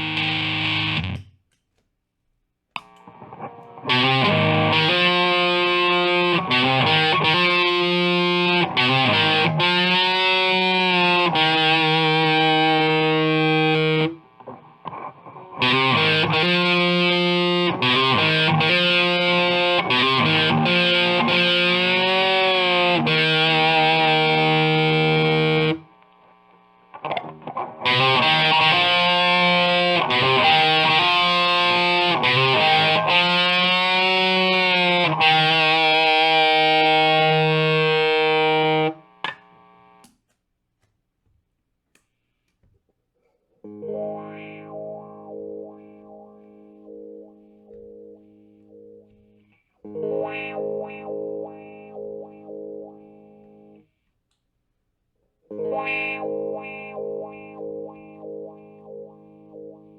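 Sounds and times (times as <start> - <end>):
distorted electric guitar: 0.0 - 1.4, 2.8 - 40.1, 43.6 - 53.9, 55.5 - 59.9.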